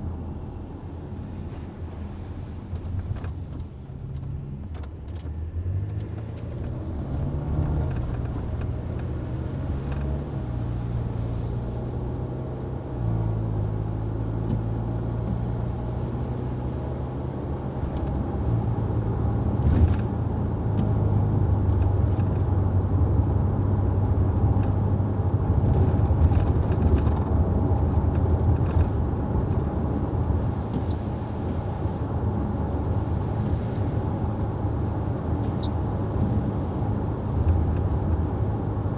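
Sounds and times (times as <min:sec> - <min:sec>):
road noise: 0:00.0 - 0:38.9
vehicle engine hum: 0:00.0 - 0:38.9.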